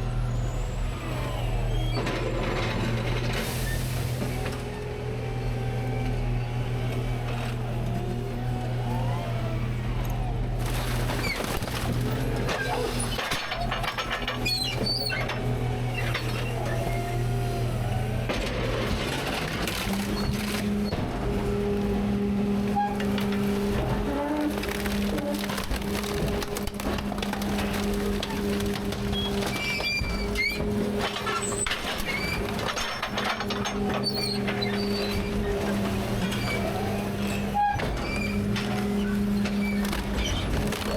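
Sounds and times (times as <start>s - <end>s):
garbage truck engine running: 0.0s - 40.9s
trash cracking and clattering: 1.9s - 40.9s
short squeaks: 11.0s - 17.1s, 27.5s - 40.9s.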